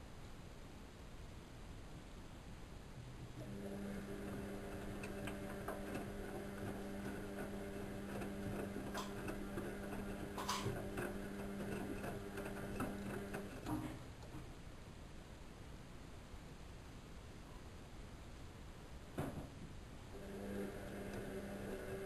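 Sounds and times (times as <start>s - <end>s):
washing machine motor hum: 3.0s - 14.6s, 20.1s - 22.0s
clicks and ticks: 8.2s - 14.3s.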